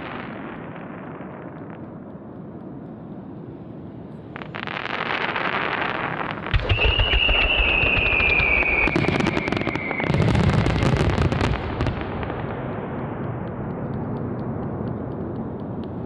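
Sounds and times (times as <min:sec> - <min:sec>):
firework crackling: 0:00.0 - 0:16.0
firework bang: 0:04.7 - 0:12.3
firework whistle falling in pitch: 0:06.5 - 0:10.3.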